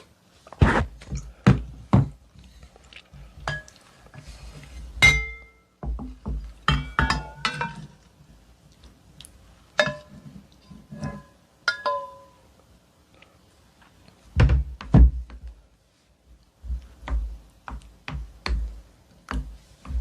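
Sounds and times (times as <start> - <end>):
spoon clinking against bowl: 11.2 - 12.4.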